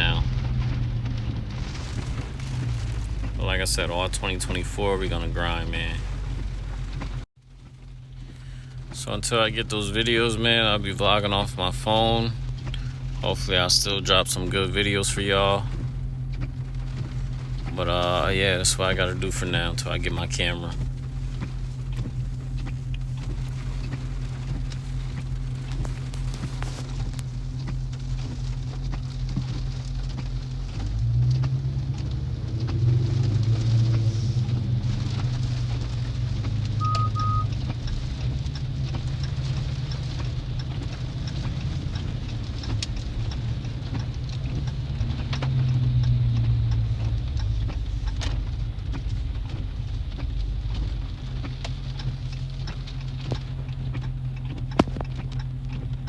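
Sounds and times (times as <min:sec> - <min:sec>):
car engine droning: 0:00.0 - 0:56.0
rain and tyres hissing: 0:00.0 - 0:56.0
double electronic beep: 0:36.8 - 0:37.5.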